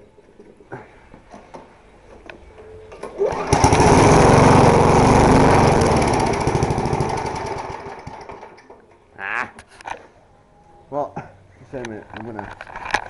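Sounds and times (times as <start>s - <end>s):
lawn mower engine starting: 2.9s - 8.9s.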